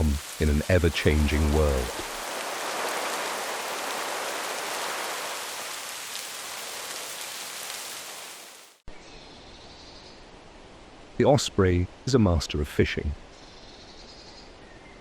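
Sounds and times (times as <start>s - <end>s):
steady rain falling: 0.0s - 8.9s, 10.2s - 13.2s
thin outdoor ambience hiss: 0.0s - 15.0s.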